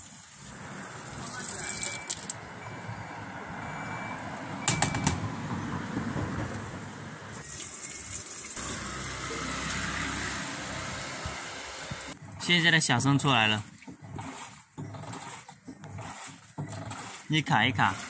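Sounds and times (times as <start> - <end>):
washing machine running: 8.6 - 18.0.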